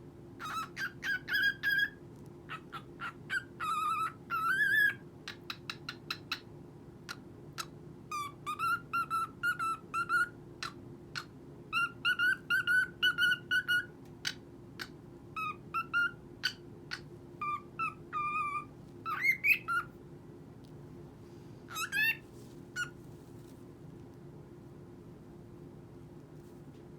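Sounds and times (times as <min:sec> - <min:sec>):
cockatiel whistling: 0:00.4 - 0:06.5, 0:07.6 - 0:14.4, 0:15.4 - 0:19.9, 0:21.7 - 0:22.2.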